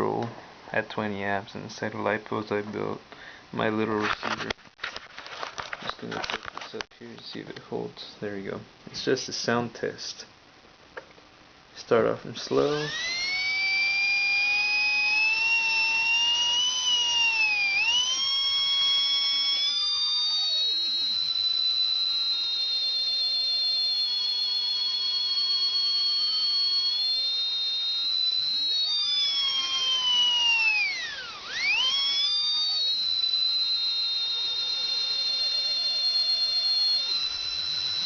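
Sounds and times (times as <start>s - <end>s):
electric motor whining: 12.5s - 38.0s.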